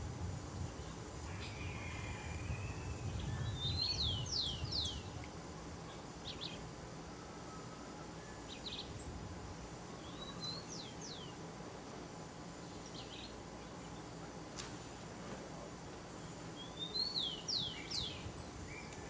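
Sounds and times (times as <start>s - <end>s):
outdoor background noise: 0.0s - 19.0s
bird chirps: 16.3s - 19.0s.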